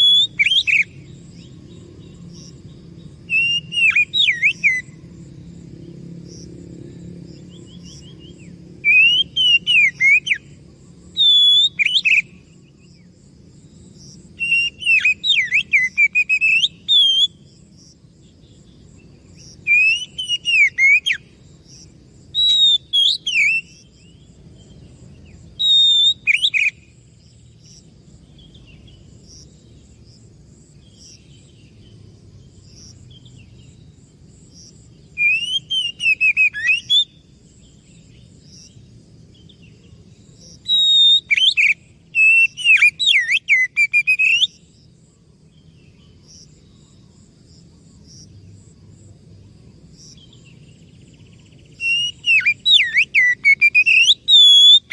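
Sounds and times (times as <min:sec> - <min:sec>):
bird singing whistled phrases: 0:00.0 - 0:01.0, 0:03.3 - 0:05.0, 0:08.8 - 0:10.5, 0:11.2 - 0:12.4, 0:14.4 - 0:17.4, 0:19.7 - 0:21.2, 0:22.4 - 0:23.8, 0:25.6 - 0:26.8, 0:35.2 - 0:37.2, 0:40.6 - 0:44.6, 0:51.7 - 0:54.9.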